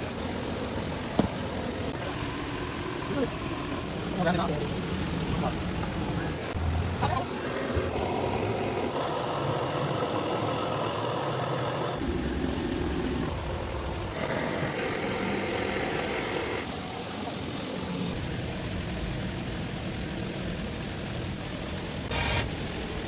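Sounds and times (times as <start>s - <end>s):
mechanical machine noise: 22.1s - 22.8s.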